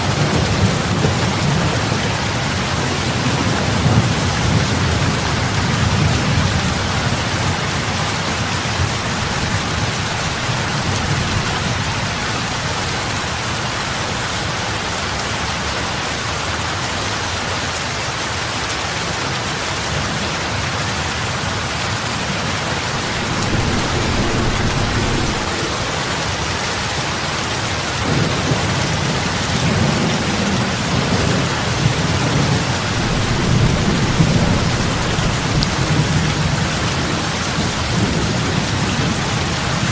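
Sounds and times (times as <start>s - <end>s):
heavy rain on water: 0.0s - 39.9s
deep low undertone: 22.8s - 27.1s.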